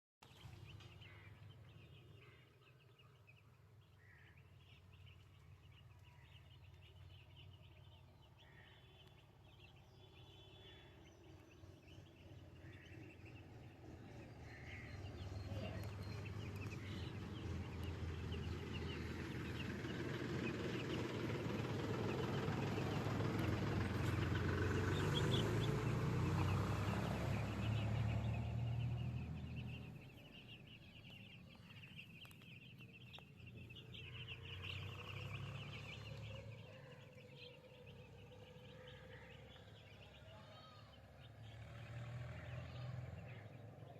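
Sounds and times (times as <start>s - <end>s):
chickens calling: 12.2s - 43.9s.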